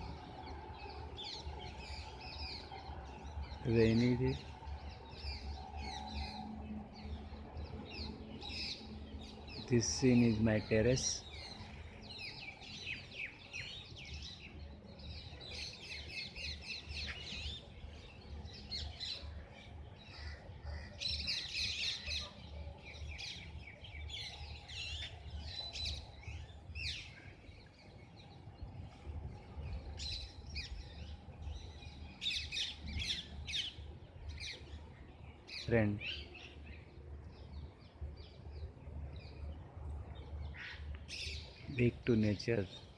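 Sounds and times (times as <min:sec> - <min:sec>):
birds chirping: 0:00.0 - 0:42.9.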